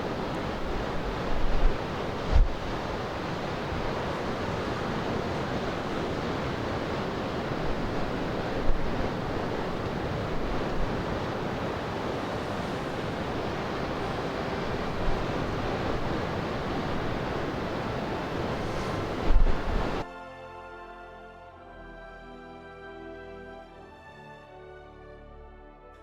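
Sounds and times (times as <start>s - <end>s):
wind buffeting microphone: 0.0s - 20.0s
sea surf: 0.0s - 20.1s.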